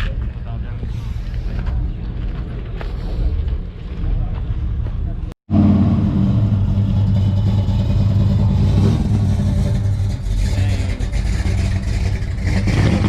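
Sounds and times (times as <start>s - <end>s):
car engine idling: 5.5s - 13.0s.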